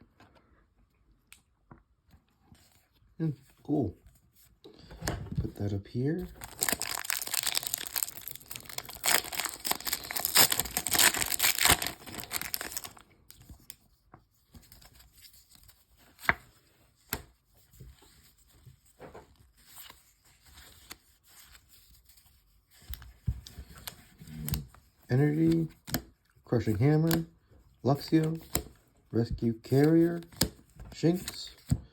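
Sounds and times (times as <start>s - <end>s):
foil wrapper crinkling and tearing: 6.4s - 13.1s.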